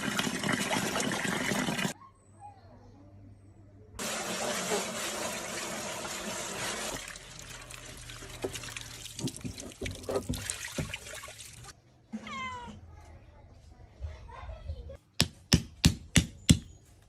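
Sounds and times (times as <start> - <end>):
running water: 0.0 - 2.0, 4.0 - 11.7.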